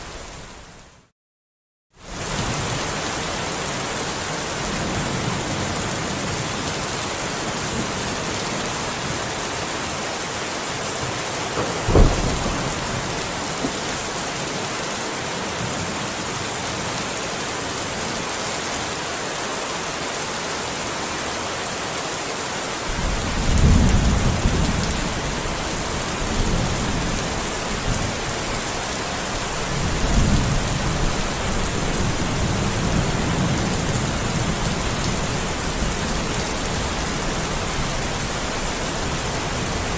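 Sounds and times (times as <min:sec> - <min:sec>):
steady rain falling: 0:02.0 - 0:39.9
sharp thunderclap: 0:11.0 - 0:14.2
low rolling thunder rumbles: 0:11.0 - 0:14.6, 0:22.9 - 0:39.8.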